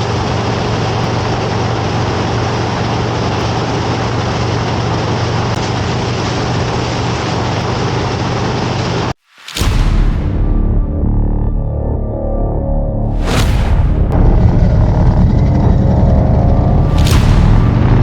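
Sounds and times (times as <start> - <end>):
motorcycle engine droning: 0.0 - 9.2, 14.0 - 18.0.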